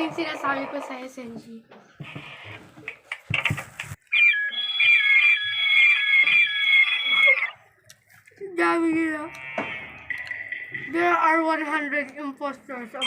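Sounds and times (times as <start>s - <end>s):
electronic alarm with falling chirps: 4.1s - 7.7s.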